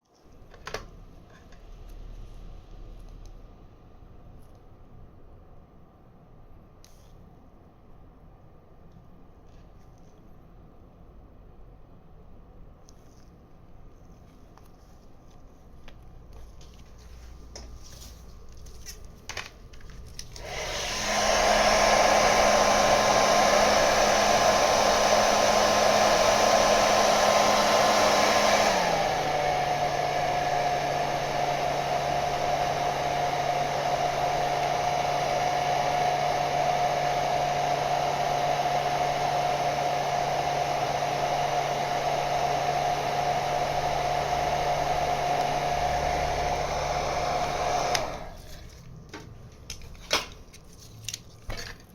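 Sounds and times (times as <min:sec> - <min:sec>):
hot-air blower whooshing and whining: 0:20.3 - 0:48.7.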